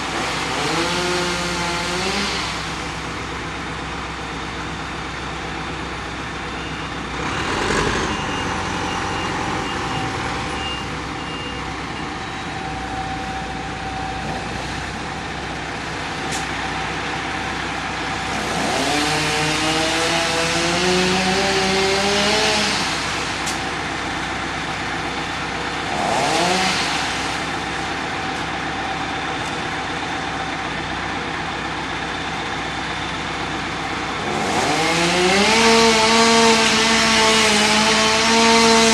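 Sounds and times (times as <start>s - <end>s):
diesel engines revving: 0.0s - 38.9s
high beeps: 8.0s - 14.2s.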